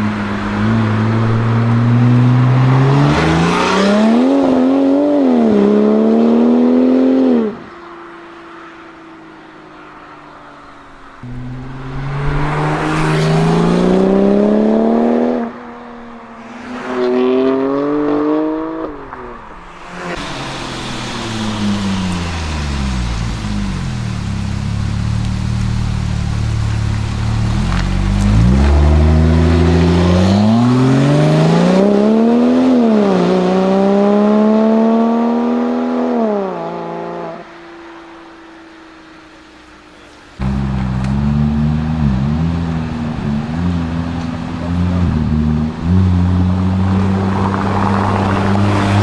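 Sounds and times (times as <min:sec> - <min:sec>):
car engine accelerating hard: 0:11.2 - 0:15.7, 0:19.8 - 0:37.4, 0:40.4 - 0:49.0.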